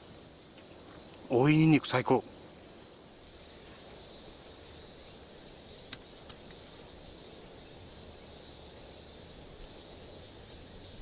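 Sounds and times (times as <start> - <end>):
insects buzzing: 0.0 - 11.0
light sharp clicks: 5.9 - 6.6.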